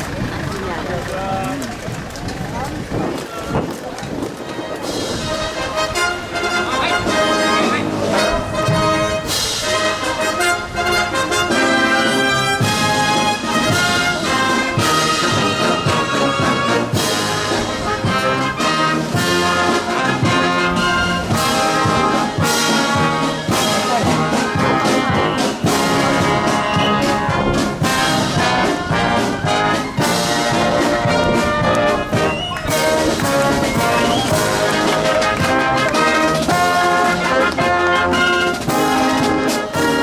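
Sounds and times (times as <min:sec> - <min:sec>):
marching brass band playing: 0:00.0 - 0:40.0.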